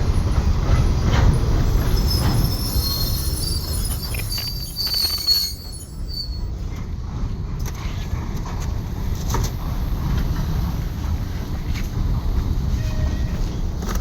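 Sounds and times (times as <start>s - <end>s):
train rumbling: 0.0s - 14.0s
high wheel squeal: 1.1s - 6.7s.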